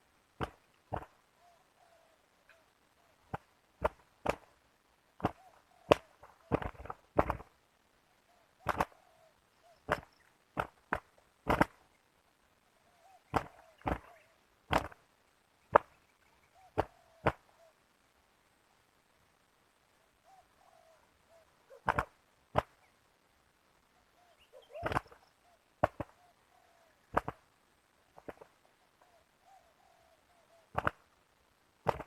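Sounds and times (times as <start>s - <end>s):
dove wing slaps: 0.4s - 1.2s, 3.2s - 4.6s, 5.2s - 7.6s, 8.6s - 9.0s, 9.8s - 11.8s, 13.3s - 15.0s, 15.7s - 16.0s, 16.7s - 17.5s, 21.7s - 22.8s, 24.6s - 25.2s, 25.8s - 26.2s, 27.1s - 27.4s, 28.2s - 28.6s, 30.7s - 31.1s
soft cooing: 1.4s - 3.3s, 16.4s - 17.8s, 20.1s - 22.0s, 24.0s - 27.2s, 28.8s - 30.8s.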